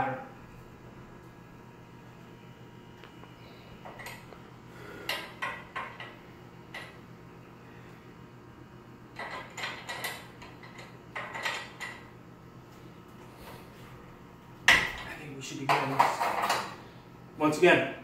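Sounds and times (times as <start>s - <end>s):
metal clinking and clanking: 9.2s - 12.1s.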